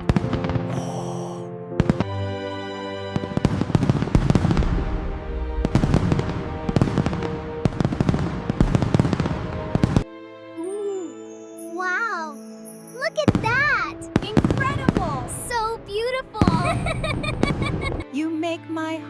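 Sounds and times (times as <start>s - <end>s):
background music: 0.0s - 19.0s
fireworks bursting and crackling: 3.1s - 10.0s, 13.1s - 18.0s.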